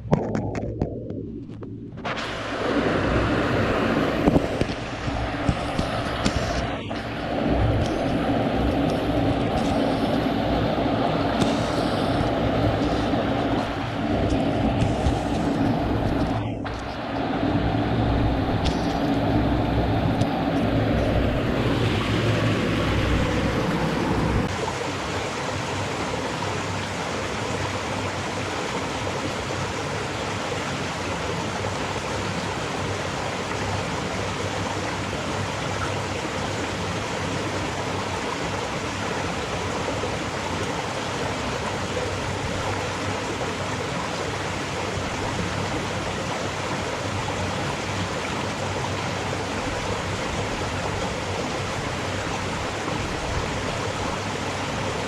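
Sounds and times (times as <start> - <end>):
low rumble: 0.0 - 24.6
fast-flowing stream rushing: 2.0 - 55.0.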